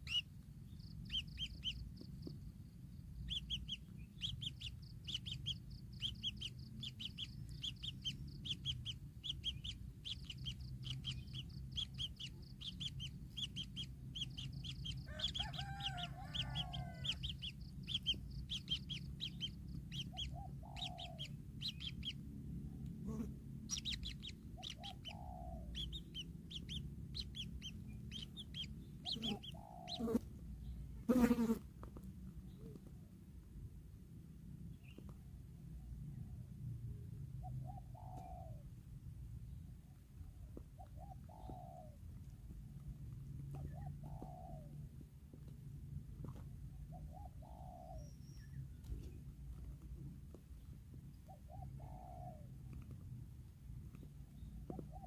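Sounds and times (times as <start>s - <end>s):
birds chirping: 0.0s - 31.4s, 40.8s - 42.0s
steady low hum: 0.0s - 55.0s
lower clucking calls: 23.0s - 30.2s.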